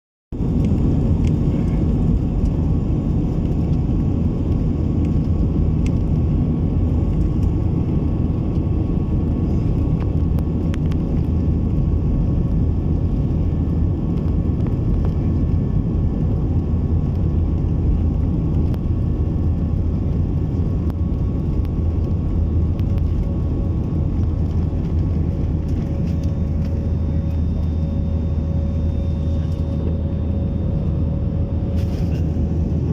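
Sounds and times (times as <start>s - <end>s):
vehicle low rumble: 0.3s - 32.9s.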